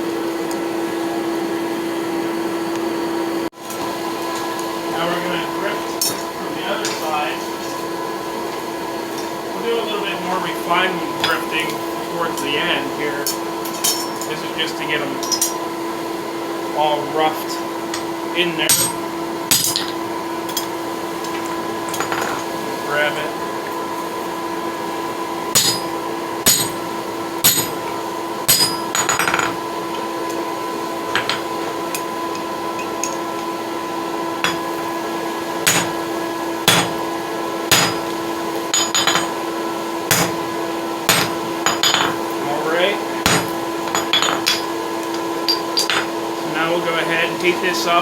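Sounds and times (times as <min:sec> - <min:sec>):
machine hum: 0:00.0 - 0:48.0
hammer striking steel: 0:18.7 - 0:20.7, 0:25.6 - 0:26.8, 0:27.4 - 0:27.9, 0:28.5 - 0:29.6, 0:34.4 - 0:34.7, 0:35.7 - 0:36.0, 0:36.7 - 0:37.0, 0:37.7 - 0:39.4, 0:40.1 - 0:40.5, 0:41.1 - 0:42.2, 0:43.2 - 0:44.8, 0:45.5 - 0:46.2.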